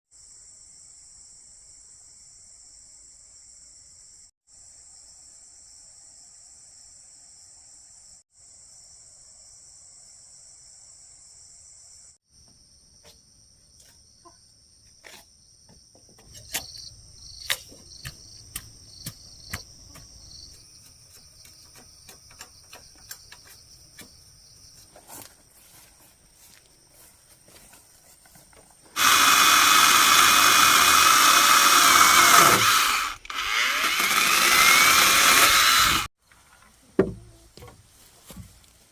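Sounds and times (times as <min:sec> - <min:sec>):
crickets and insects chirping: 0:00.1 - 0:38.8
sharp knocks: 0:37.0 - 0:37.8.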